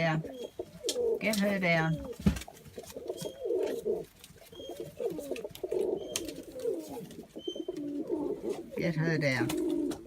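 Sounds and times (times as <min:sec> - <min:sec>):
doves cooing: 0:00.0 - 0:10.0
faint high chirp: 0:04.5 - 0:05.0.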